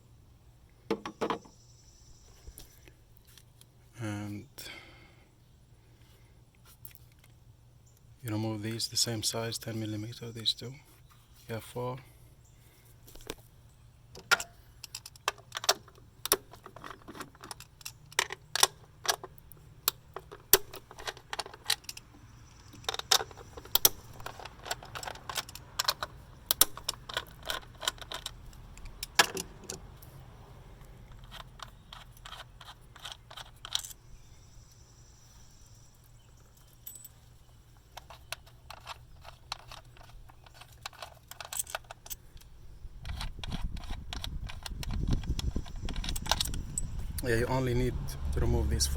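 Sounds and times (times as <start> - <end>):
socket ratchet clicking: 22.8 - 29.8
small metallic clinks: 31.0 - 47.1.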